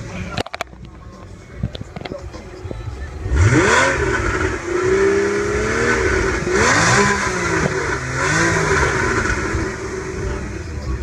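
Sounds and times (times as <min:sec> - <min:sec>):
car engine revving hard: 0:03.3 - 0:10.6.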